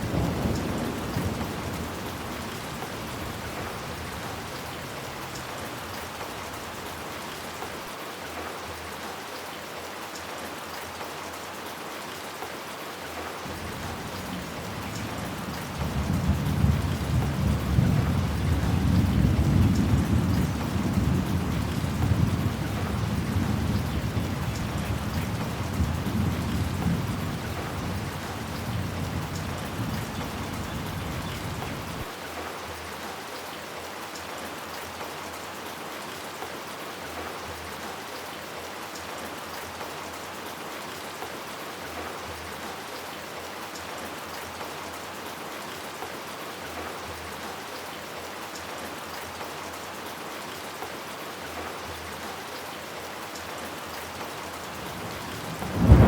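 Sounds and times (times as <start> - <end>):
rain falling: 0.0 - 56.0
thunder rumbling: 54.8 - 56.0.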